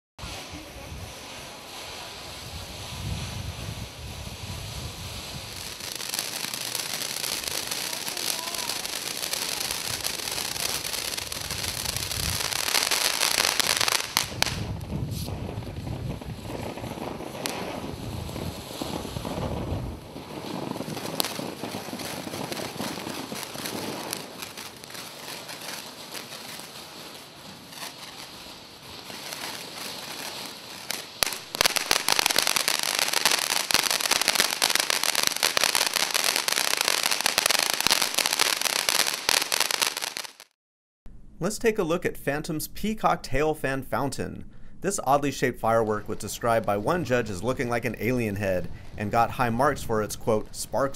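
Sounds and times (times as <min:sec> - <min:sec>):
firework fountain hissing: 0:00.2 - 0:40.6
sharp firework pops: 0:00.2 - 0:40.6.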